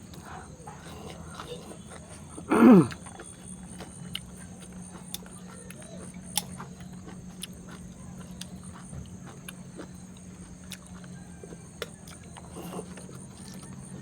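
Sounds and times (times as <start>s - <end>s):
chewing: 0.0s - 14.0s
steady low hum: 0.0s - 14.0s.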